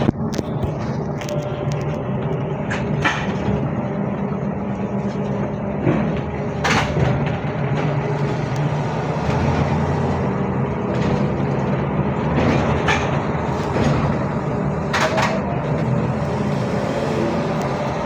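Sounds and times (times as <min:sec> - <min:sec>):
trolleybus cabin hum and rumble: 0:00.0 - 0:18.0
knocks and rattles: 0:05.0 - 0:18.0.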